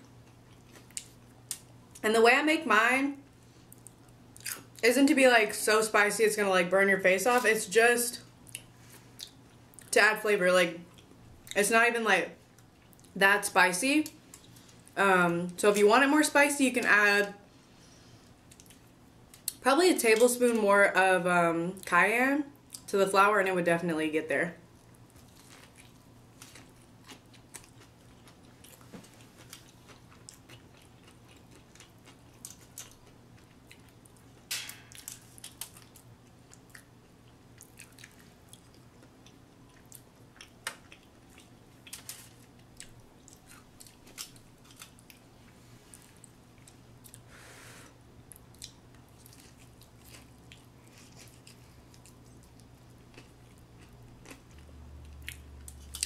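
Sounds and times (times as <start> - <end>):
person chewing crispy sandwich: 0.0 - 1.8, 24.8 - 47.3, 48.2 - 56.0.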